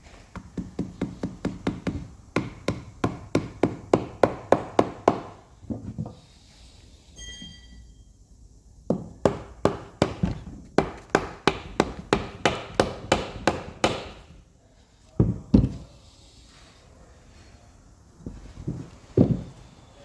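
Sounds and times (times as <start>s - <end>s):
heavy hammer knocks: 8.9s - 14.2s.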